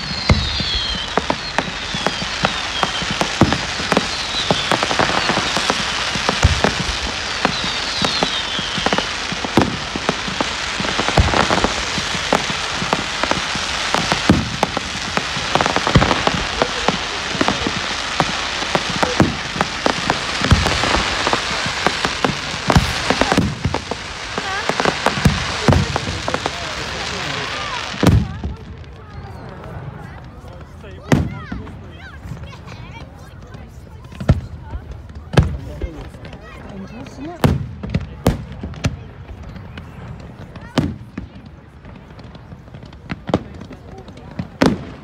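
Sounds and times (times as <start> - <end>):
falling whistles of fireworks: 0.0 - 45.0
fireworks bangs: 0.0 - 45.0
fireworks crackling: 0.0 - 45.0.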